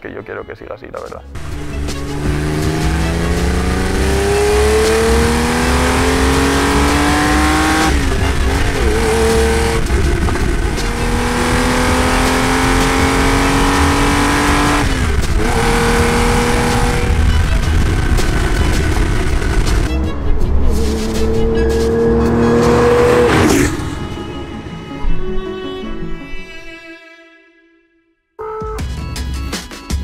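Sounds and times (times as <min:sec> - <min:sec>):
car engine accelerating: 0:01.4 - 0:26.1.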